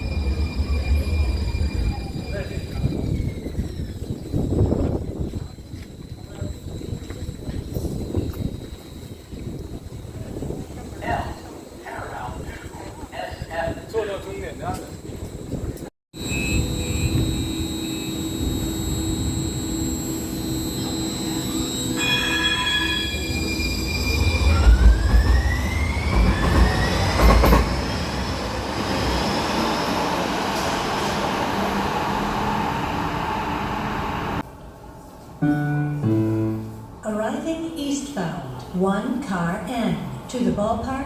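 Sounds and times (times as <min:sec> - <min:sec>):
train motor whine: 0:16.2 - 0:34.4
wheels rumbling on rail: 0:22.0 - 0:35.4.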